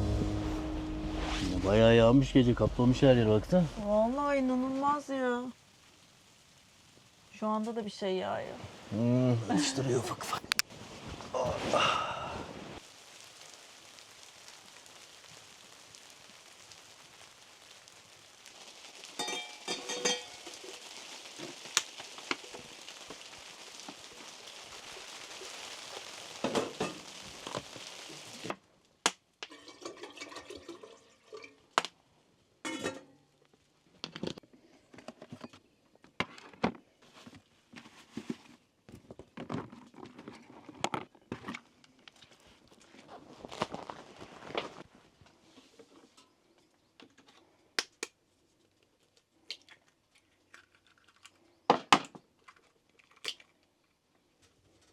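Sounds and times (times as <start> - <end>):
steady hiss: 0.0 - 28.6
small objects clicking and clinking: 18.8 - 23.2.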